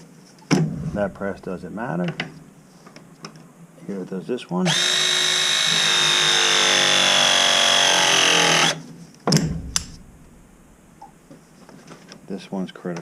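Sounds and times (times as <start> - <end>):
pressing tool motor whine: 4.7 - 8.8
sharp knocks: 9.3 - 11.4.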